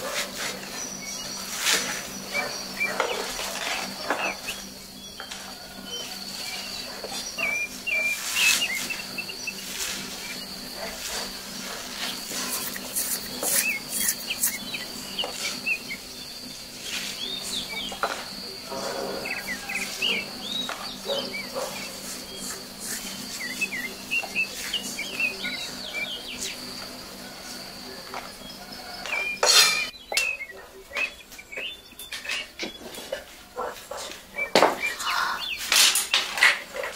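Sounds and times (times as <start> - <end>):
birds chirping: 0.0 - 36.9
high insect drone: 0.0 - 36.9.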